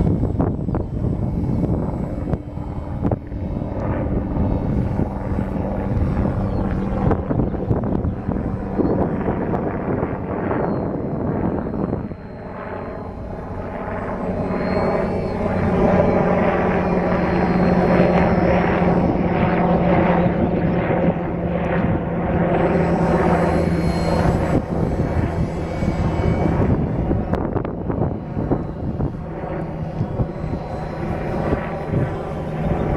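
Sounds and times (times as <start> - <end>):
model airplane motor droning: 0.0 - 32.9.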